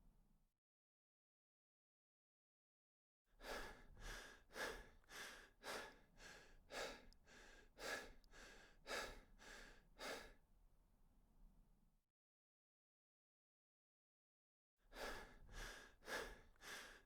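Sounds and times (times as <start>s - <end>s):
person breathing hard: 3.4s - 10.4s, 14.9s - 17.0s.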